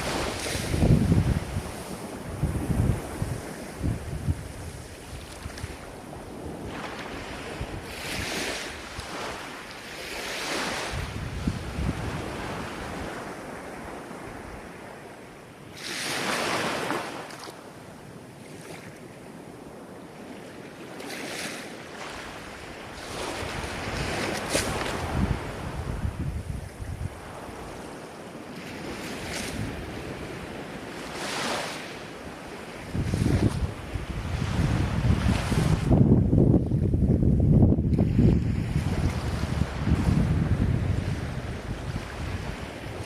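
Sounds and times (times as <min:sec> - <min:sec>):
wind buffeting microphone: 0:00.0 - 0:09.5, 0:10.2 - 0:14.9, 0:23.0 - 0:28.0, 0:28.6 - 0:31.5, 0:32.3 - 0:43.0
ocean waves breaking on shore: 0:00.0 - 0:43.0.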